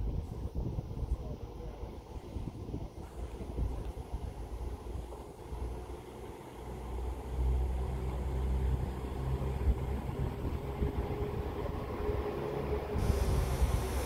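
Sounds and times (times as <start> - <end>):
wind noise on microphone: 0.0 - 5.7, 8.7 - 14.0
train engine humming: 0.0 - 14.0.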